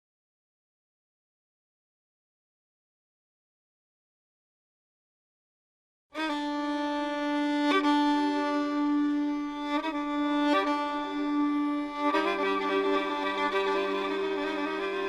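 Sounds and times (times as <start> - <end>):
bowed string instrument holding notes: 6.2 - 15.0.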